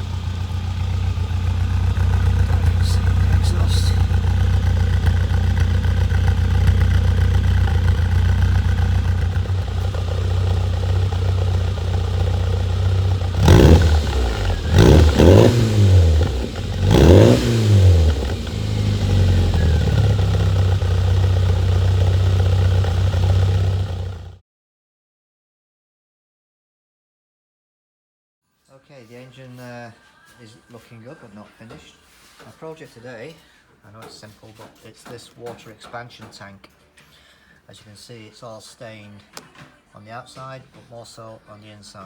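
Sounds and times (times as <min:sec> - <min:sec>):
car engine idling and revving: 0:00.0 - 0:24.4.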